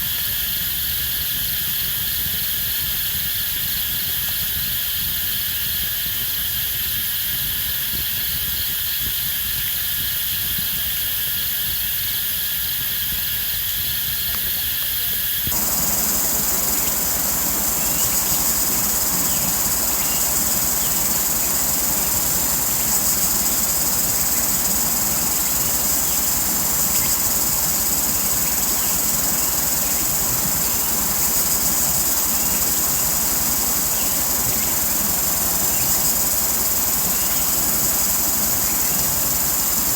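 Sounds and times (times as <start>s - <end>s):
hiss: 0.0s - 39.9s
forest insects chirring: 15.5s - 39.9s.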